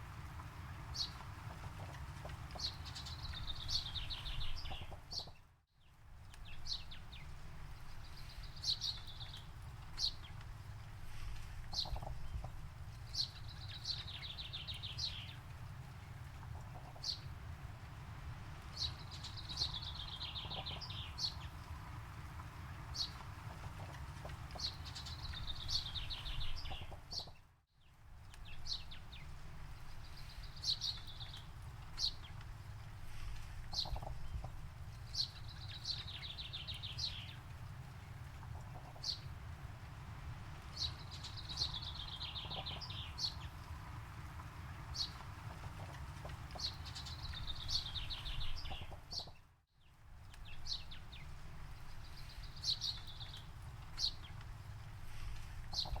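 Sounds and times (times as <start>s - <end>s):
steady low rumble: 28.2s - 49.1s
birds singing trills: 33.7s - 34.4s, 40.7s - 43.6s, 44.9s - 49.4s, 55.7s - 56.0s.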